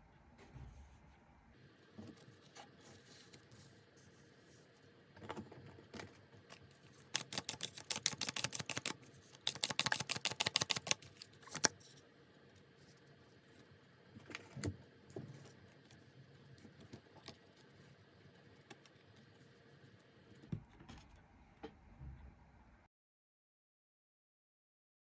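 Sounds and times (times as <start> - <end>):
cards being shuffled: 6.5 - 11.8
rapid card clicks: 7.0 - 11.8.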